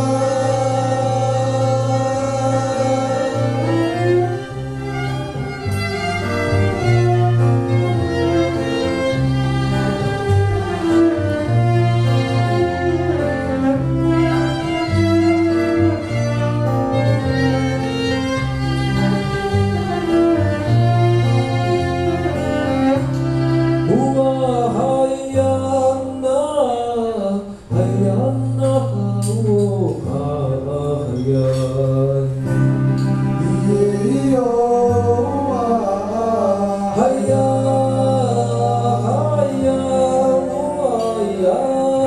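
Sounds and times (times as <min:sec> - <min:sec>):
person singing: 0:00.0 - 0:04.6, 0:23.8 - 0:32.4, 0:33.3 - 0:42.0
acoustic band music: 0:00.0 - 0:42.0.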